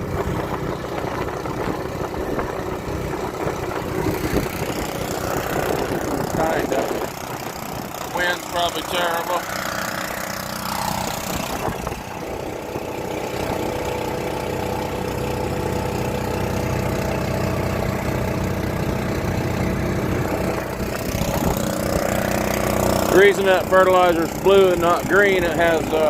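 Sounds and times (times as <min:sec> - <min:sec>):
wind on microphone: 0:00.0 - 0:08.5, 0:10.9 - 0:13.7, 0:20.1 - 0:22.5
engine running: 0:00.0 - 0:26.0.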